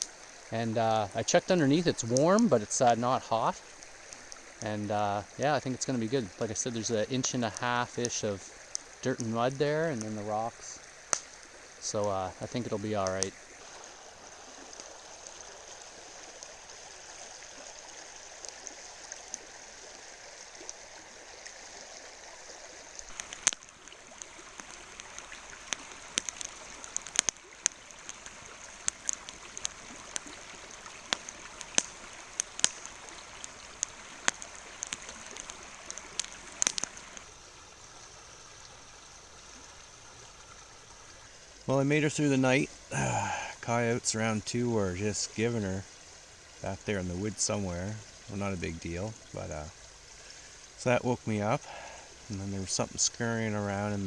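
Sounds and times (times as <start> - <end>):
river water flowing: 0.0 - 54.0
sharp pops: 31.1 - 37.3.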